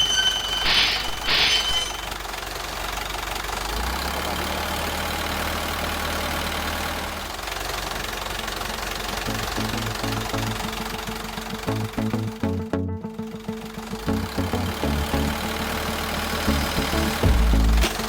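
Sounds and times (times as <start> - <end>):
truck engine running: 0.0 - 18.0
deep low hum: 9.3 - 13.4, 14.0 - 18.0.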